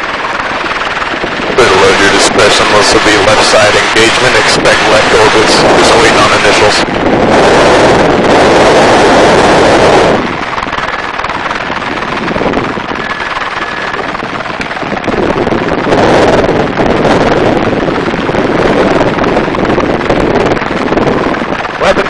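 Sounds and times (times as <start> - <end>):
helicopter rotor and engine noise: 0.0 - 22.0
wind buffeting microphone: 0.0 - 22.0.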